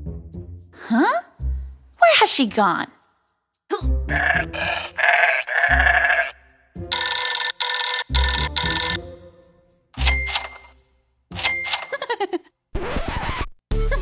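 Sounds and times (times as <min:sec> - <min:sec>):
music: 0:00.0 - 0:11.8, 0:12.8 - 0:14.0
buzzy bleat-like noise: 0:04.1 - 0:06.4.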